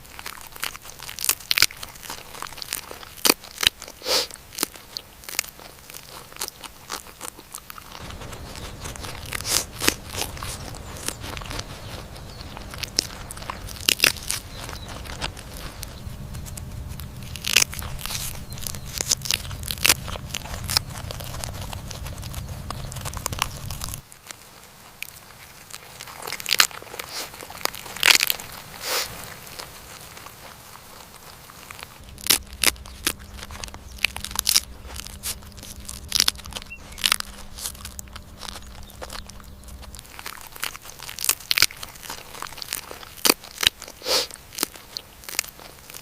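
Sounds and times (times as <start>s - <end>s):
rabbit chewing leaves: 0.0s - 46.0s
low hum: 8.0s - 24.0s, 31.7s - 40.3s.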